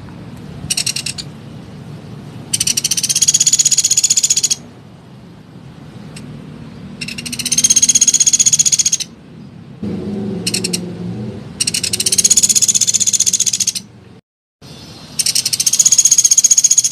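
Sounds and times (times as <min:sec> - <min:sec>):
woodpecker rattling trills: 0:00.7 - 0:01.3, 0:02.5 - 0:04.6, 0:07.0 - 0:09.2, 0:10.5 - 0:10.8, 0:11.6 - 0:13.9, 0:15.2 - 0:16.9.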